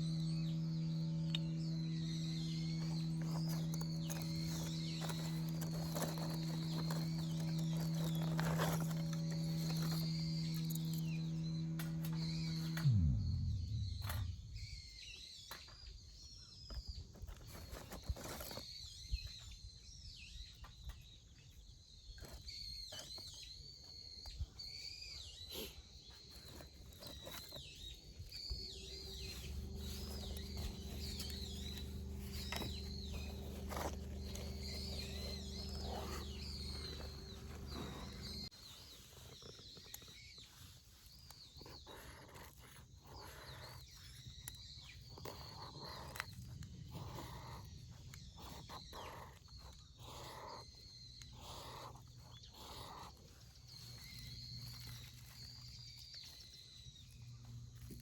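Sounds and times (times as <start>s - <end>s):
low hum: 0.0s - 16.0s, 28.1s - 38.5s
birds calling: 0.0s - 58.0s.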